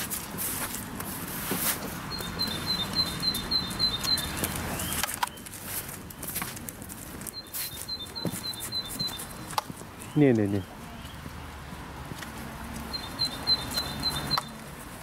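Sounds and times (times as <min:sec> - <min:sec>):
footsteps and scuffing: 0:00.0 - 0:13.0
songbird singing high notes: 0:02.1 - 0:05.4, 0:07.4 - 0:09.5, 0:12.9 - 0:14.6.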